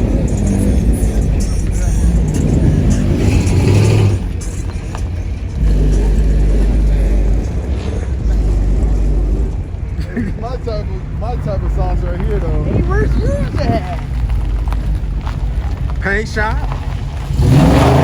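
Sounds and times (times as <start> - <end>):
car engine revving loudly: 0.0 - 18.0.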